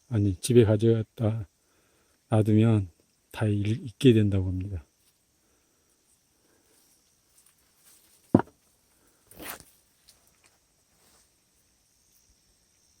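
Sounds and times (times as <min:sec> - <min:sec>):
short rustle: 0:06.7 - 0:11.4.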